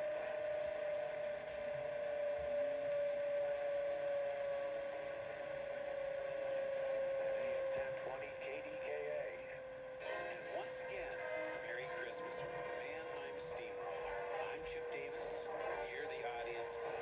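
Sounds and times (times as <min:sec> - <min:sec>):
radio whistle tone: 0:00.0 - 0:17.0
radio static hiss: 0:07.2 - 0:17.0.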